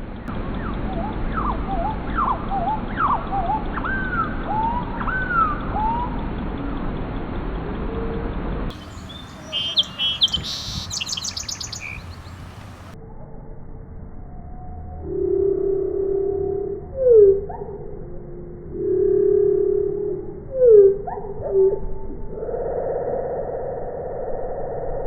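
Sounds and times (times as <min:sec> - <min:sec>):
noisy background: 0:00.0 - 0:13.0
whistled bird calls: 0:00.4 - 0:13.0
rapid high bird chirps: 0:08.7 - 0:13.0.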